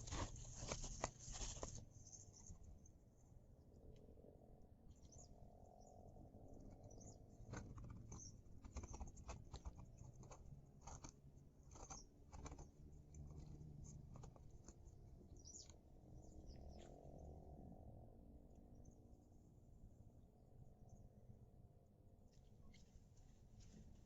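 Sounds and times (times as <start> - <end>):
low steady hum: 0.0 - 24.0
small clicks and taps: 7.5 - 14.9.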